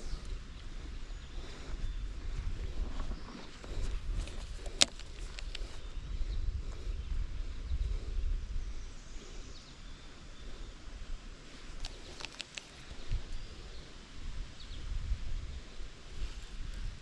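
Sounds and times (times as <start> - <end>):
faint bird chirps: 0.0 - 15.9
sharp clicks: 4.3 - 5.8, 11.8 - 13.2.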